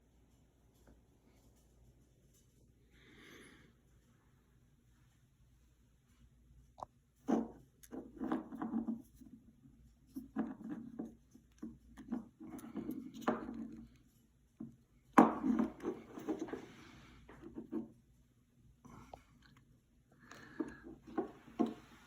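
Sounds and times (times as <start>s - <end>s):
objects being handled: 10.0s - 17.9s, 20.4s - 22.0s.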